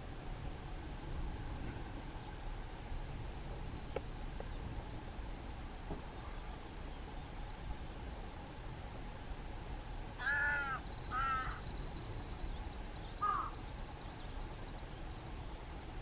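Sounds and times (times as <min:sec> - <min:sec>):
crow cawing: 0:10.2 - 0:11.6, 0:13.2 - 0:13.6.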